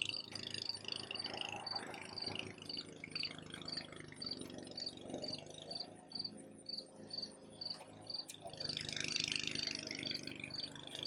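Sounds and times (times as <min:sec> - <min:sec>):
insects chirping: 0:00.0 - 0:11.0
low steady hum: 0:00.0 - 0:11.0.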